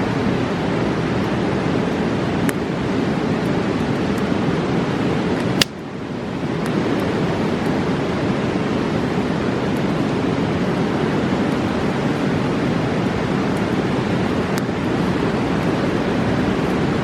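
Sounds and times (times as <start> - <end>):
fast river rushing: 0.0 - 17.0
campfire crackles and pops: 2.4 - 2.8, 3.4 - 4.4, 5.3 - 5.9, 6.5 - 7.8, 14.3 - 15.9.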